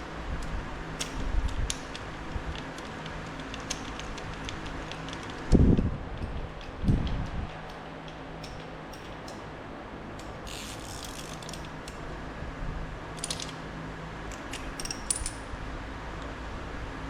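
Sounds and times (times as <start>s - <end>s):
ratchet clicking: 1.0s - 5.5s, 6.2s - 9.5s, 10.2s - 12.0s, 13.2s - 13.6s, 14.3s - 15.5s.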